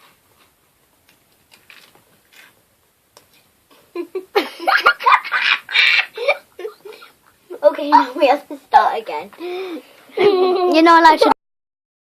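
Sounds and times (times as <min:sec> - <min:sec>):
children laughing and squealing: 0:04.4 - 0:07.1, 0:10.0 - 0:11.4.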